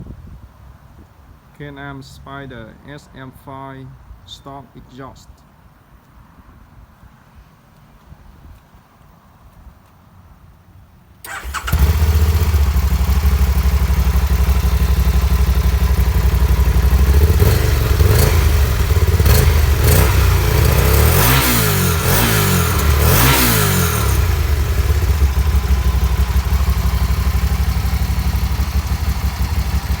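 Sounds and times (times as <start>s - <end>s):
engine revving: 11.3s - 30.0s
motorcycle engine idling: 11.3s - 30.0s.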